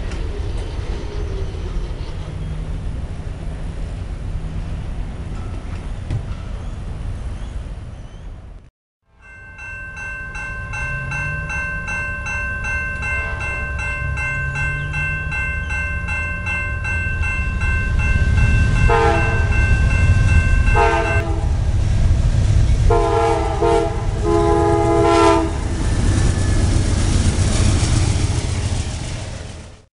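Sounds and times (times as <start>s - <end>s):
train rumbling past: 0.0s - 29.9s
crossing bell ringing: 5.3s - 6.5s, 9.1s - 21.6s
train horn blasts: 13.0s - 15.0s, 18.7s - 19.7s, 20.6s - 21.7s, 22.8s - 25.7s.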